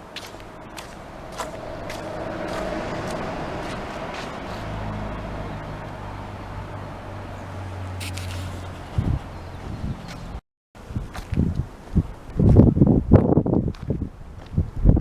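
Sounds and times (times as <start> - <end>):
light footsteps: 0.0 - 6.1, 7.8 - 10.4
vehicle engine drone: 0.0 - 10.4.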